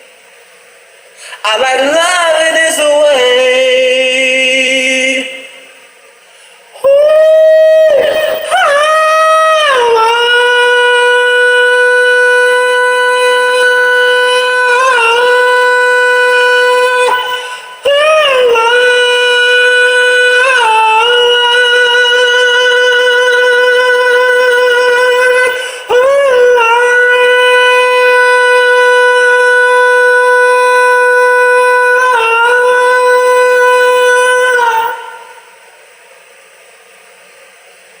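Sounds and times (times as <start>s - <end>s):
person singing long high notes: 6.8s - 35.6s.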